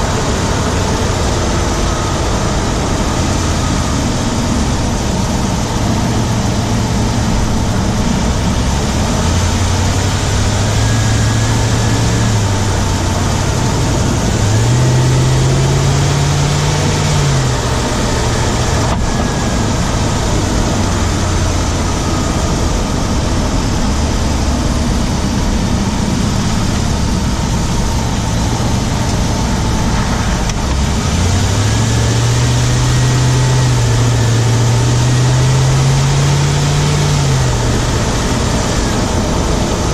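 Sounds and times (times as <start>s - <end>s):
engine ticking: 0.0s - 39.9s
truck engine running: 0.0s - 39.9s.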